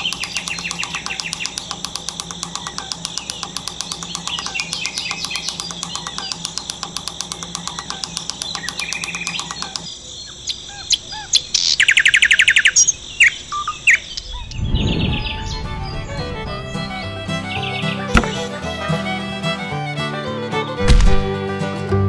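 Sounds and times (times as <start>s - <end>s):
fast bird trill: 0.0s - 18.5s
birds chirping: 0.0s - 20.0s
low whoosh: 14.6s - 17.3s
background music with beat: 16.3s - 21.9s.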